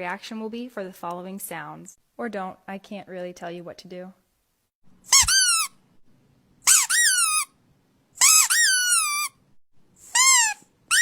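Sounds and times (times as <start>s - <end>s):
squeaky toy squeaking: 5.1s - 5.8s, 6.6s - 7.5s, 8.2s - 9.4s, 10.0s - 11.0s.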